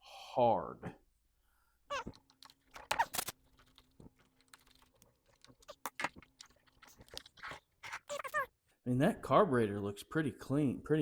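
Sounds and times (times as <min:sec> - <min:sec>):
clicks of small parts handled: 0:02.0 - 0:06.1.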